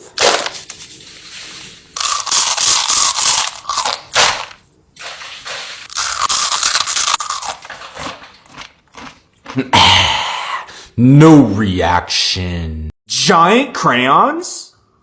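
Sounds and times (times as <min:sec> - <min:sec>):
crunching and chewing food: 0:01.9 - 0:04.6, 0:05.8 - 0:09.7.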